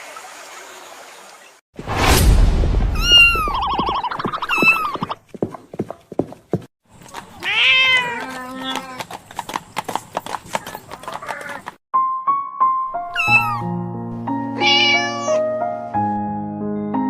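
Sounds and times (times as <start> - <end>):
animal call falling in pitch: 2.9 - 5.1.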